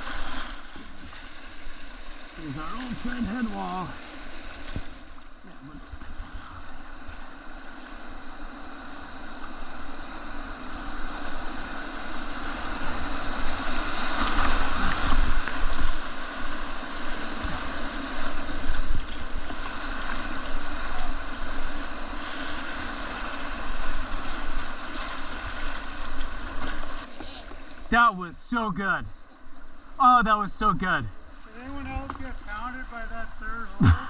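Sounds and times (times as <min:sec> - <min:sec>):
whitewater rushing: 0:02.3 - 0:04.1, 0:10.7 - 0:27.2.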